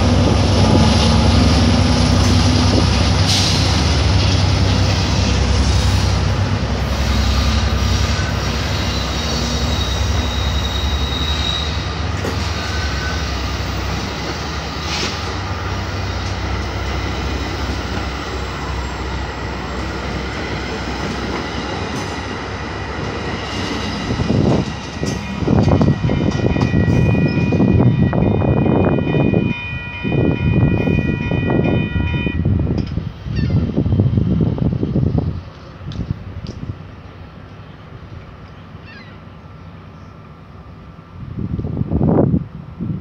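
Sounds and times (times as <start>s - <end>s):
train rumbling on rails: 0.0s - 43.0s
high wheel squeal: 6.9s - 15.8s.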